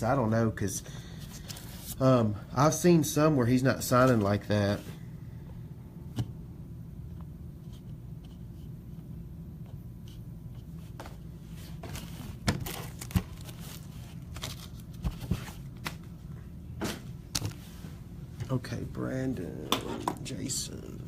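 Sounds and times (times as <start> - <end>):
steady low hum: 0.0 - 21.0
card wrappers crinkling: 11.9 - 16.0.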